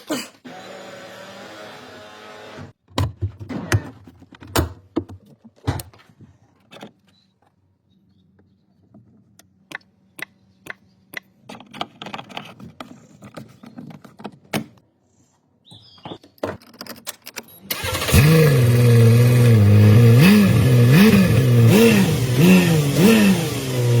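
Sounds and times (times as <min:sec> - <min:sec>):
car engine revving: 0:17.7 - 0:24.0.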